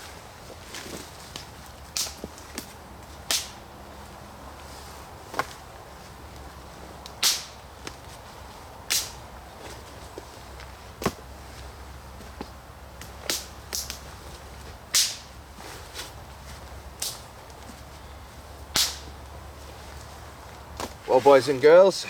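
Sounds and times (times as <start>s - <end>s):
dead wood snapping: 3.3s - 3.6s, 7.1s - 8.0s, 18.7s - 19.1s.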